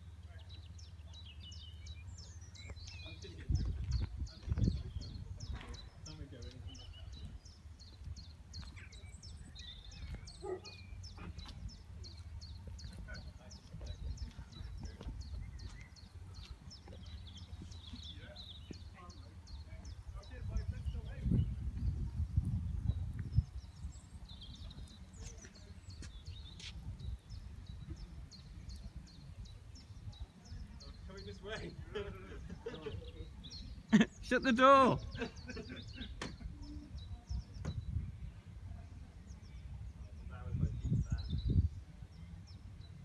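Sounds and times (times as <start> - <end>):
bird chirping: 0.0 - 31.8
wind rumbling on microphone: 2.0 - 33.9, 35.0 - 43.0.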